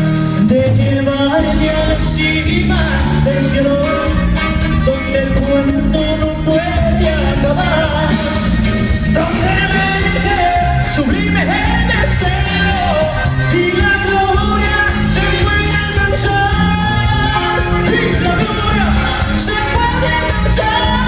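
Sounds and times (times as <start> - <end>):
live band playing a ballad: 0.0 - 21.0
saxophone melody: 2.7 - 6.5, 7.5 - 21.0.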